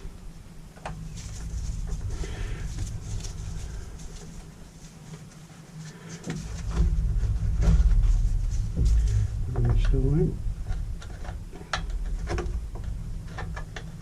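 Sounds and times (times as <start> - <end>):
low rumble: 0.0 - 14.0
plastic parts being handled: 0.8 - 9.9.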